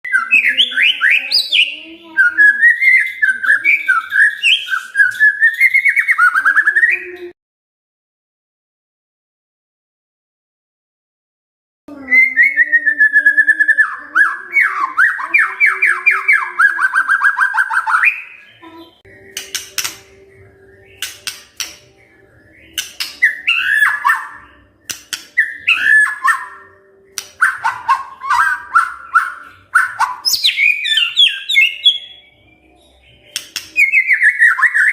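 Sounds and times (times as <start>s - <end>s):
bird singing whistled notes: 0.0s - 7.2s, 12.0s - 34.9s
bird clicking notes: 19.2s - 20.2s, 20.9s - 21.9s, 22.7s - 24.2s, 24.8s - 26.4s, 27.1s - 30.4s, 33.3s - 34.8s.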